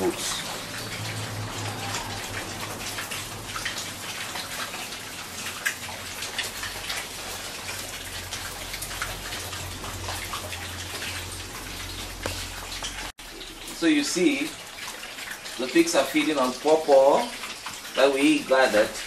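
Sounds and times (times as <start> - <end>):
pigs chewing and smacking: 0.0 - 13.9.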